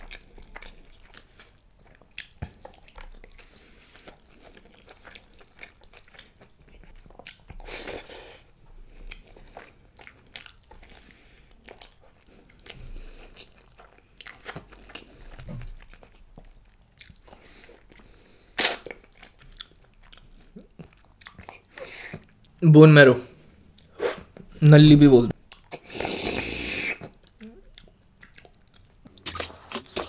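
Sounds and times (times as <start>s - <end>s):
chewing and biting food: 0.0s - 22.6s, 25.5s - 30.0s
sharp mouth sound: 18.6s - 18.9s.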